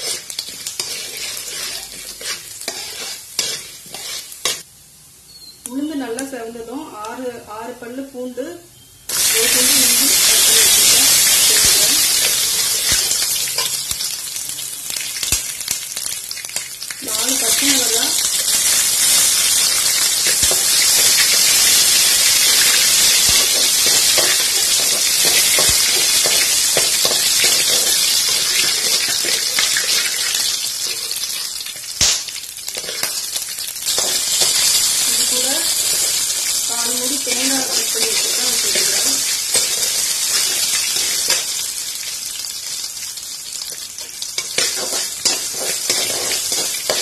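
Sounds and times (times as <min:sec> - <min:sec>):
food sizzling in hot oil: 0:00.0 - 0:04.7, 0:09.1 - 0:47.0
steel spatula scraping a pan: 0:00.0 - 0:04.7, 0:17.3 - 0:31.2, 0:33.9 - 0:41.6, 0:44.4 - 0:47.0.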